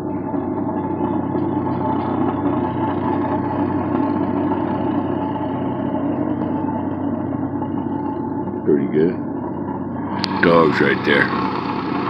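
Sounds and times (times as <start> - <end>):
engine humming steadily: 0.0 - 12.0.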